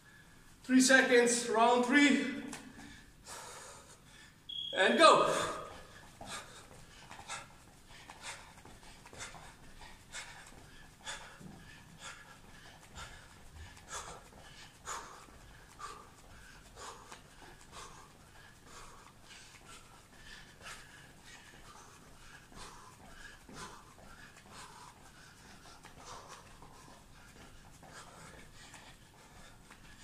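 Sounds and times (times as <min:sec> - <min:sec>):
sharp breaths through nose: 0:05.7 - 0:30.0.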